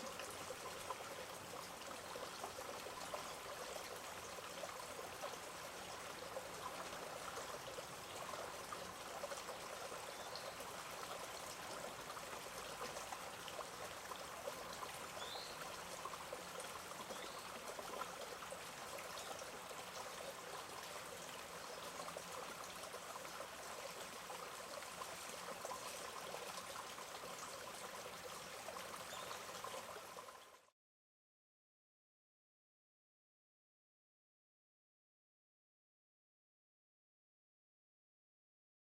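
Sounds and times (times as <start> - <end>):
shallow stream trickling: 0.0 - 30.7.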